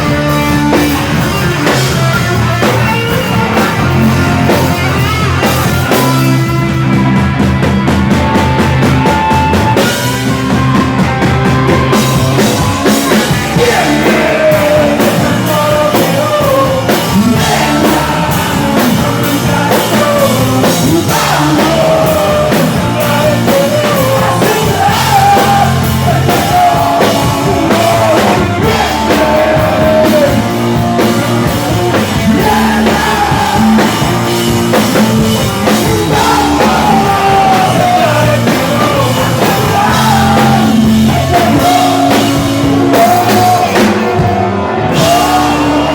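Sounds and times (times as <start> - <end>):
live rock band playing: 0.0 - 45.9
person singing and yelling: 12.3 - 45.9.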